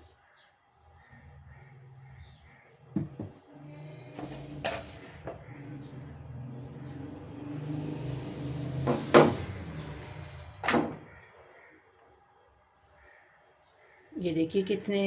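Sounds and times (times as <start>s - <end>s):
sharp knocks: 3.0s - 3.4s, 8.7s - 10.0s.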